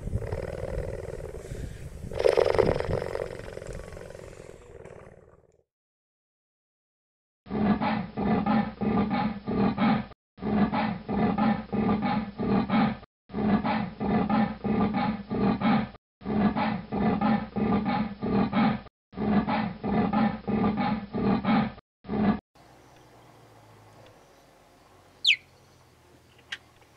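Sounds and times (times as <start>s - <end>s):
cheetah call throaty pulses: 0.0s - 5.5s.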